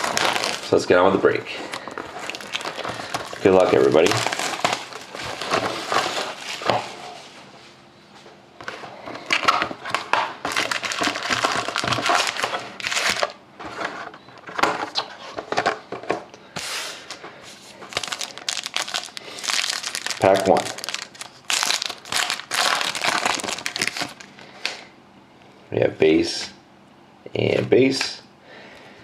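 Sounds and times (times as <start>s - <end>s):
card pack wrapper crinkling: 0.0s - 0.9s, 1.5s - 7.1s, 9.3s - 13.4s, 17.9s - 24.4s.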